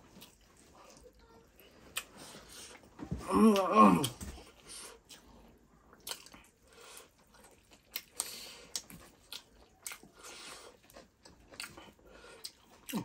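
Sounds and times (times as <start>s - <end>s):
faint chewing clicks: 4.9s - 13.0s.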